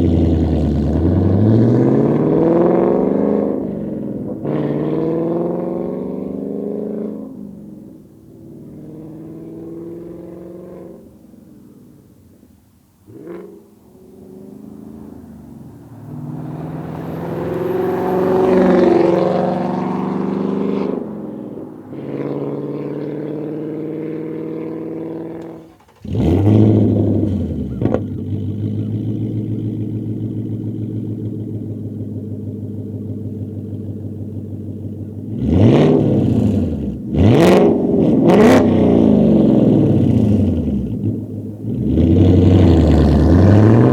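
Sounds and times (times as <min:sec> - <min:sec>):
car engine starting and idling: 0:00.0 - 0:06.4, 0:07.4 - 0:43.9
car engine running: 0:13.6 - 0:23.0, 0:23.6 - 0:43.9.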